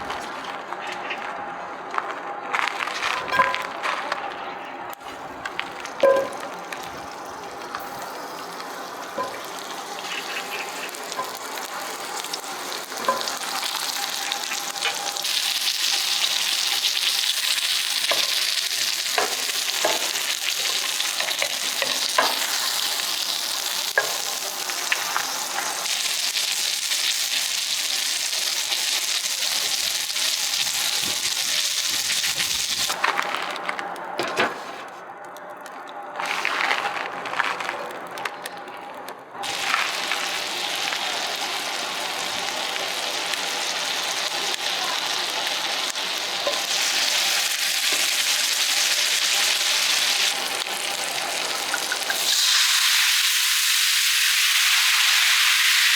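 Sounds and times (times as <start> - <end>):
steak sizzling over fire: 5.6 - 33.0, 39.4 - 55.9.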